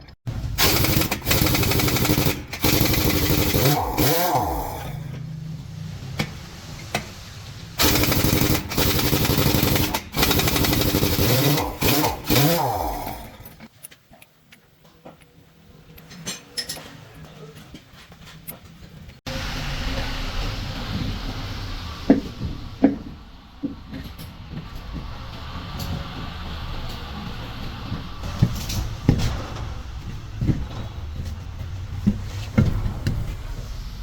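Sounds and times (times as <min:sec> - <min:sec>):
air impact wrench running: 0:00.4 - 0:05.2, 0:07.8 - 0:13.7
metal clinks and taps: 0:15.9 - 0:17.0.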